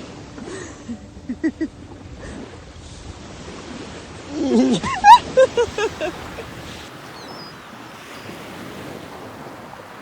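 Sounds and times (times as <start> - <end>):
bird chirping: 7.1 - 8.3.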